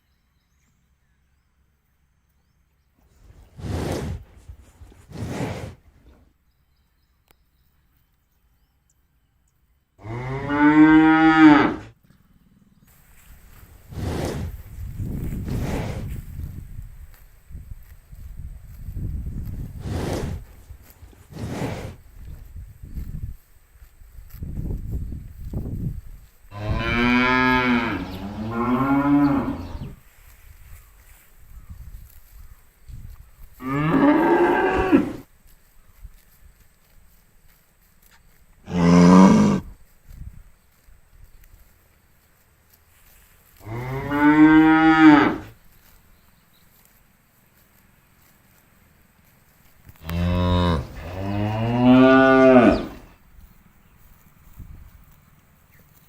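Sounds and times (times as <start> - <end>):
cow mooing: 10.0 - 11.9, 26.5 - 29.9, 38.7 - 39.6, 43.6 - 45.5, 50.0 - 53.1.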